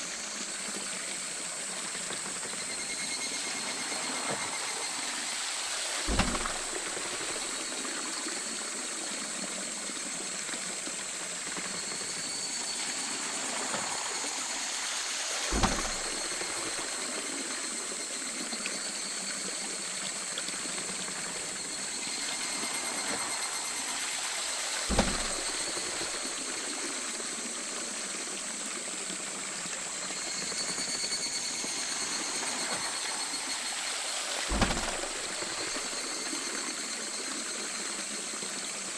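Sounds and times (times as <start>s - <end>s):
water flowing and splashing: 0.0s - 38.9s
faint high steady tones: 2.2s - 10.2s, 11.4s - 27.6s, 29.6s - 38.5s
deep thud: 6.1s - 7.4s, 15.5s - 16.6s, 24.9s - 25.9s, 34.5s - 35.7s.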